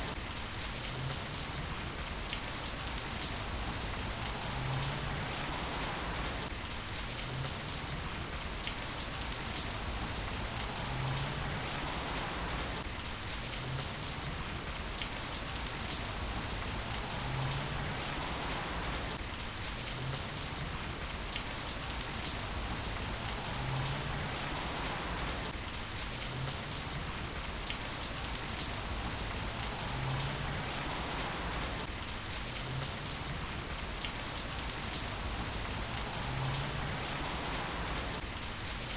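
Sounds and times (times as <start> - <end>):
heavy rain: 0.0 - 38.9
raindrops ticking on a surface: 0.0 - 38.9.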